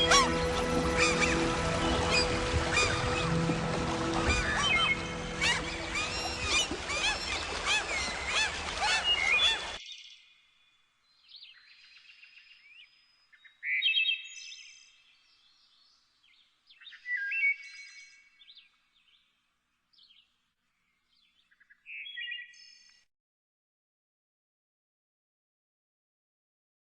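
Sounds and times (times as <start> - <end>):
birds chirping: 0.0 - 9.8.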